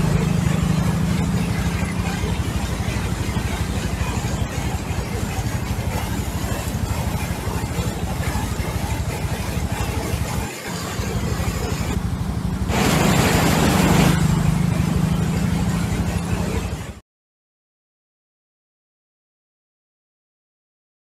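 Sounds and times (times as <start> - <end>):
heavy rain pouring: 12.6 - 16.6.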